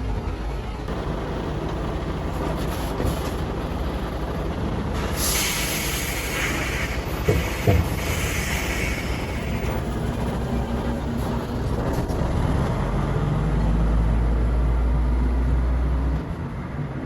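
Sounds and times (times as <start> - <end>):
heavy vehicle rumbling: 0.0 - 17.0
loud hiss: 5.0 - 10.0
sharp knocks: 7.2 - 8.2.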